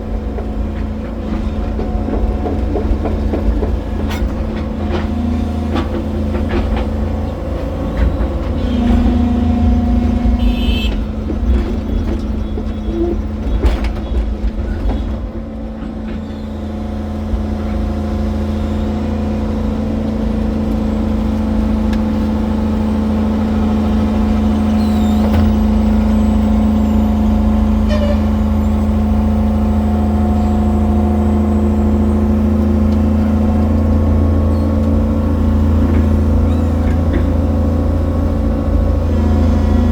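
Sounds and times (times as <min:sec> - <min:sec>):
excavator diesel engine running: 0:00.0 - 0:39.9
clanks and knocks: 0:00.2 - 0:09.3, 0:09.9 - 0:16.4, 0:35.8 - 0:37.6.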